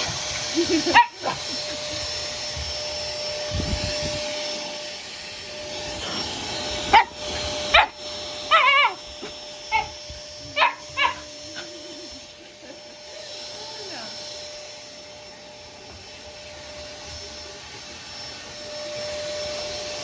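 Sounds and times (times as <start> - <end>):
vacuum cleaner running: 0.0 - 20.0
puppy barking: 0.9 - 1.5, 6.9 - 9.9, 10.6 - 11.7.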